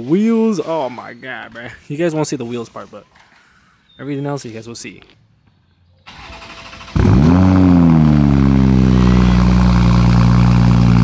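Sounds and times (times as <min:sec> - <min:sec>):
car engine starting and idling: 0:06.1 - 0:11.0.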